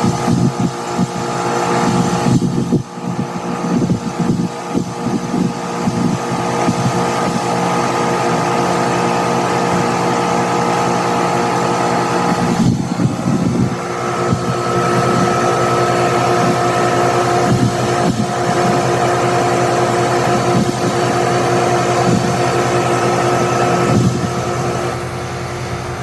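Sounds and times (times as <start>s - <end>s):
air conditioning unit humming: 21.2s - 26.0s
high whine: 23.6s - 26.0s.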